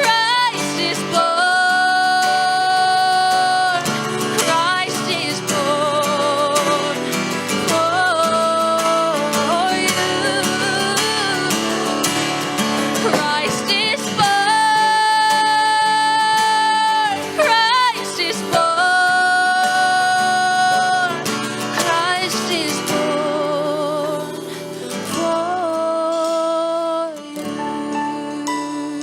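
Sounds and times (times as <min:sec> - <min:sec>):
strummed acoustic guitar: 0:00.0 - 0:29.0
woman singing: 0:00.0 - 0:29.0.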